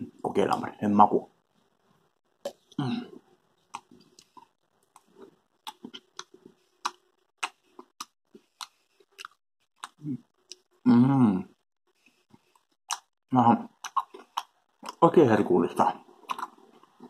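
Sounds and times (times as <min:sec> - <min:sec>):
muffled biting sound: 0:02.4 - 0:10.7, 0:16.1 - 0:17.0
man chewing with wet mouth clicks: 0:03.7 - 0:10.8, 0:12.3 - 0:15.0, 0:16.2 - 0:17.0.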